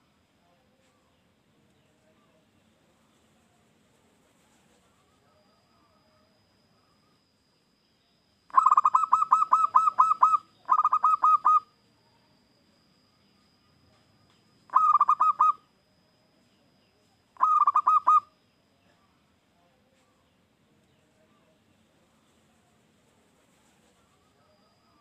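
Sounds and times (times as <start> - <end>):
dove cooing staccato: 8.5 - 11.7, 14.7 - 15.6, 17.4 - 18.3.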